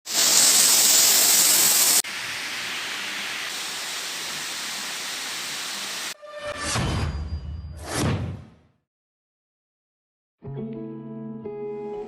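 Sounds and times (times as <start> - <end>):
waterfall rushing: 0.1 - 6.2.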